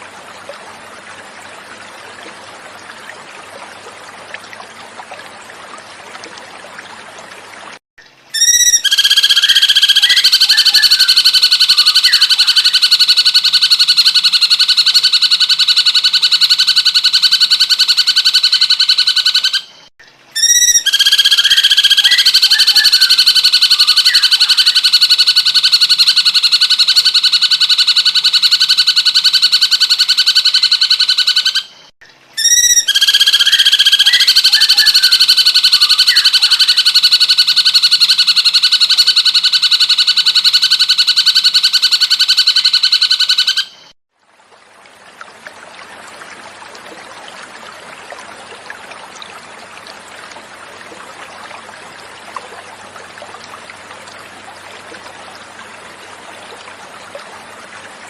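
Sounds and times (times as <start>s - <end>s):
bird rapid trill: 8.3s - 13.0s, 20.4s - 24.9s, 32.4s - 37.0s.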